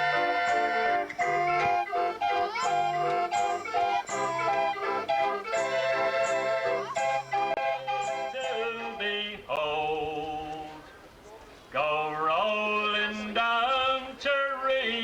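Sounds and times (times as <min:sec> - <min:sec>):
man singing sea song: 0:07.3 - 0:15.0.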